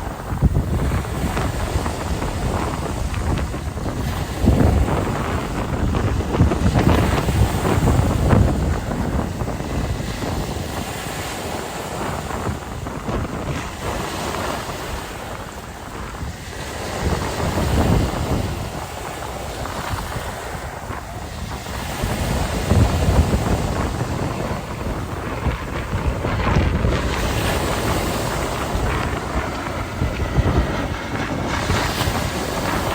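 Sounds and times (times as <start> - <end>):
sea waves washing ashore: 0.0 - 32.9
wind buffeting microphone: 0.0 - 32.9.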